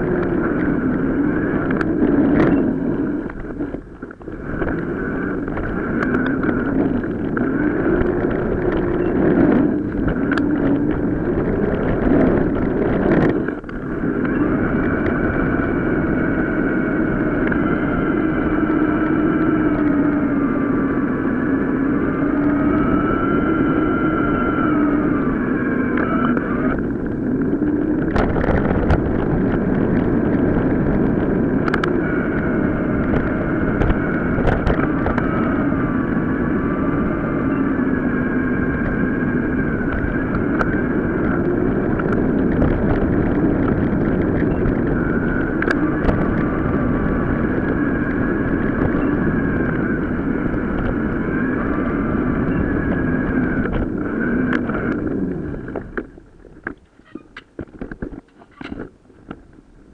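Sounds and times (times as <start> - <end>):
bike ride rush with whines: 0.0 - 59.9.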